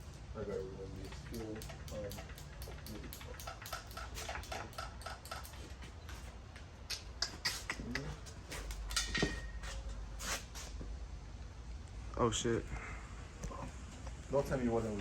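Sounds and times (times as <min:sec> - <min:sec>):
ratchet wrench clicking: 0:00.9 - 0:05.8
metal tools clinking: 0:08.5 - 0:10.0.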